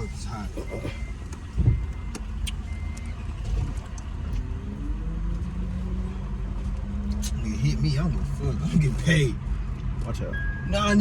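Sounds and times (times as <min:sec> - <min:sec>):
electronic chime beep: 0:10.3 - 0:11.0.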